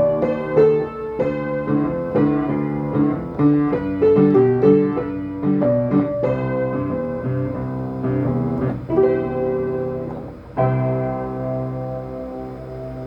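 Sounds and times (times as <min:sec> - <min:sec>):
piano melody over chords: 0:00.0 - 0:13.0.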